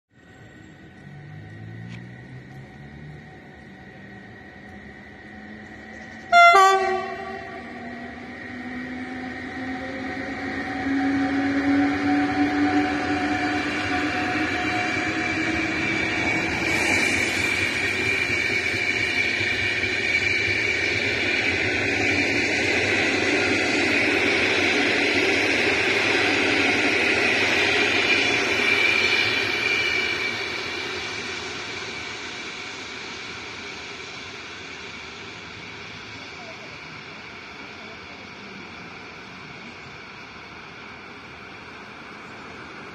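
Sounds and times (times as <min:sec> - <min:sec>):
rising whine: 0:00.2 - 0:42.9
train wheels rushing on rails: 0:00.2 - 0:42.9
train horn blast: 0:06.2 - 0:07.8.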